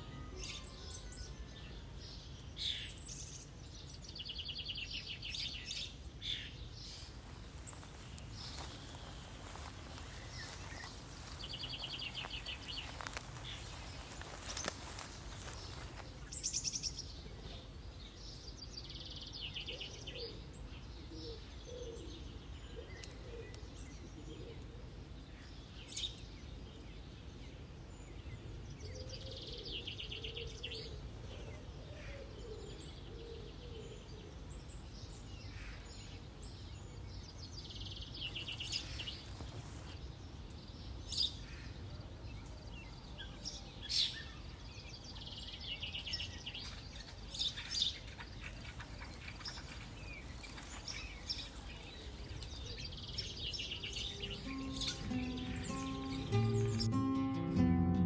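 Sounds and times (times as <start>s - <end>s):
bird trilled song: 0.0s - 17.3s, 43.2s - 58.0s
low wavering bird calls: 7.0s - 16.9s, 45.2s - 58.0s.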